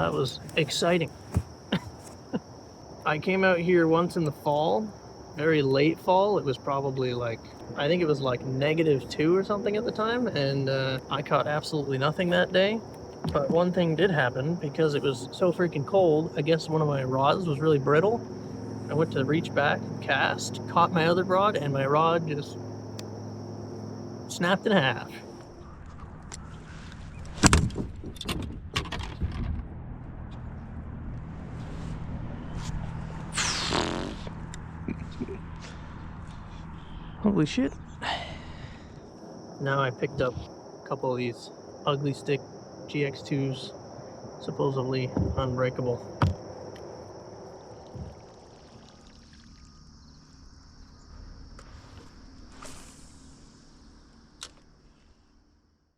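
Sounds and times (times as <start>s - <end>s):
high insect buzz: 0.0s - 27.6s, 30.3s - 55.9s
low motor drone: 29.4s - 39.2s
hissing sweep falling in pitch: 33.3s - 34.5s, 51.2s - 54.3s
sharp knocks and clatters: 46.2s - 46.5s
water trickling and lapping: 46.2s - 50.9s.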